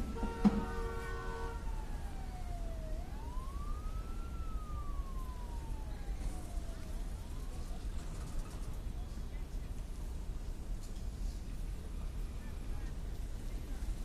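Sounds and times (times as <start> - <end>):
siren wailing: 0.0 - 7.8.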